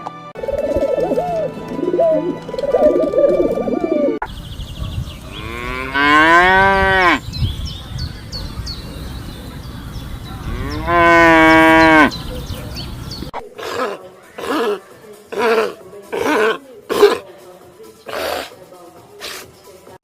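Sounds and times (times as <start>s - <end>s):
small birds chirping: 4.2s - 15.6s
cow mooing: 5.3s - 7.2s, 10.4s - 12.2s.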